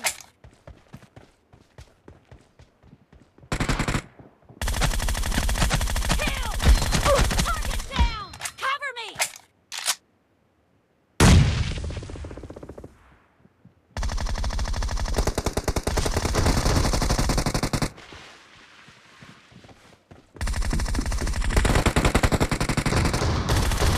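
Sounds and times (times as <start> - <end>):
video game automatic gunfire: 3.5 - 8.1, 14.0 - 17.9, 20.4 - 23.9.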